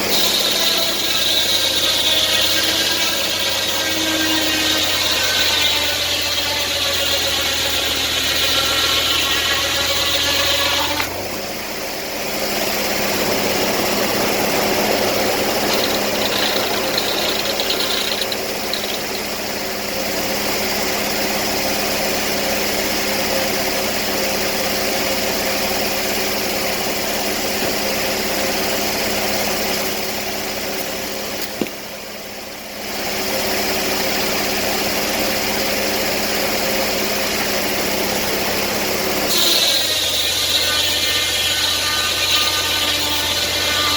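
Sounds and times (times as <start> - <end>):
engine running: 0.0 - 22.5.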